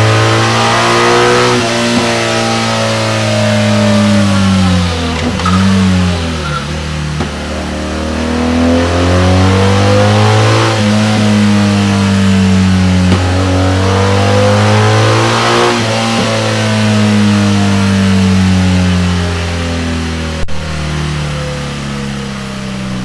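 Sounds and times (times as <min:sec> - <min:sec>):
motorcycle engine exhaust note: 0:00.0 - 0:23.0.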